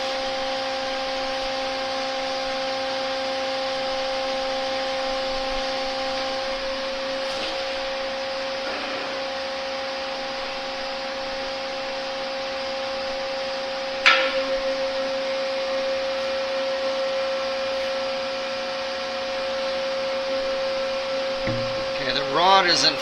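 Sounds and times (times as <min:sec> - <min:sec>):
hydraulic pump whining drone: 0:00.0 - 0:23.0
sharp metallic clank: 0:14.1 - 0:14.6.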